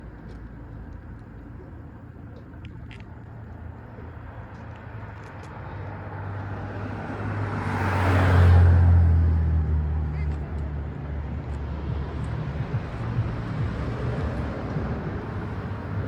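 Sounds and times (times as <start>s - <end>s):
vehicle engine rumbling: 9.0s - 16.0s.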